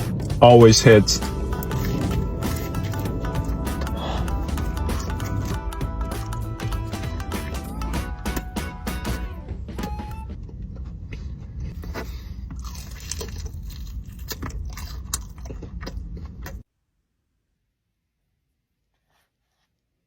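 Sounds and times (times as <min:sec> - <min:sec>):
steady low rumble: 0:00.0 - 0:14.7
crunching and chewing food: 0:01.3 - 0:08.6, 0:10.4 - 0:16.7.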